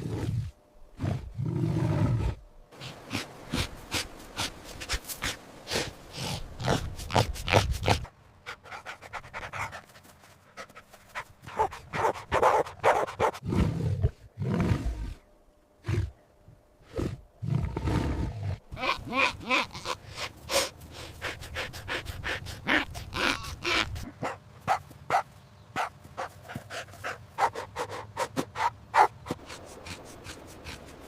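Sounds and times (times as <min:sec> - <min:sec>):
dog panting: 0:08.5 - 0:13.3, 0:20.2 - 0:25.2, 0:25.8 - 0:31.0
dog barking: 0:11.5 - 0:13.4, 0:24.2 - 0:25.9, 0:27.4 - 0:29.2.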